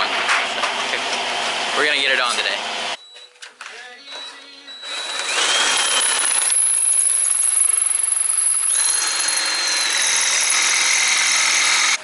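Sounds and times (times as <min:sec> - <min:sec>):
power tool motor whine: 0:04.8 - 0:12.0.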